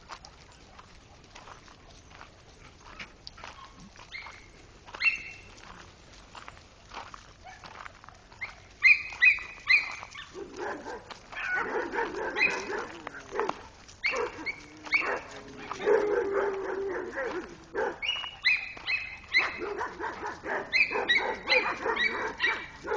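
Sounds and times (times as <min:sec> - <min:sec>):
dogs barking: 0:07.4 - 0:22.9.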